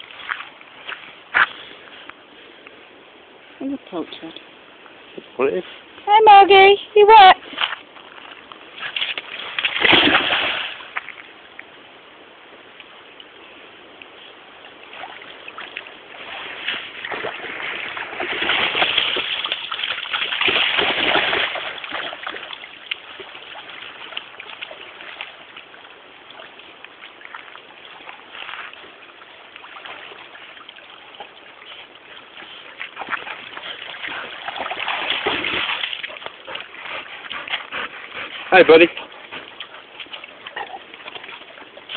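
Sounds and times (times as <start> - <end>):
dog splashing in water: 8.8 - 11.1, 14.8 - 41.9.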